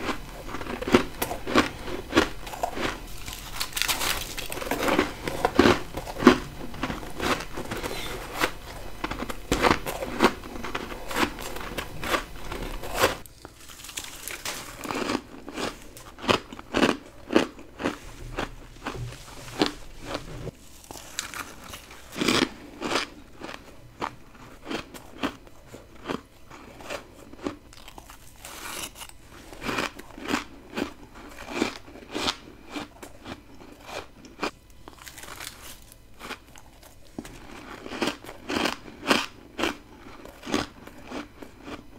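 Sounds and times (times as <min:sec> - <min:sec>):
faint low hum: 0:00.0 - 0:41.9
crunching ice bites: 0:00.6 - 0:07.8.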